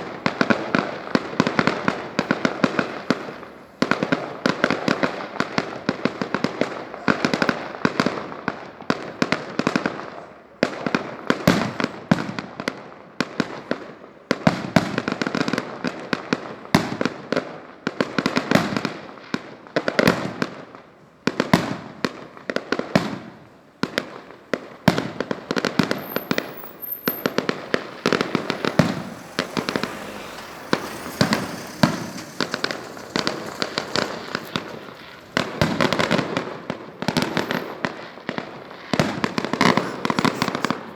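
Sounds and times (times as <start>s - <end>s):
fireworks bursting: 0.0s - 40.9s
fireworks crackling: 0.0s - 40.9s.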